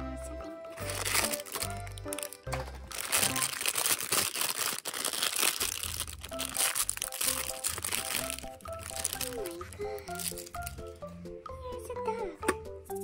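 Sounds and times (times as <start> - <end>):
background music: 0.0 - 13.0
foil wrapper crinkling: 0.8 - 10.9.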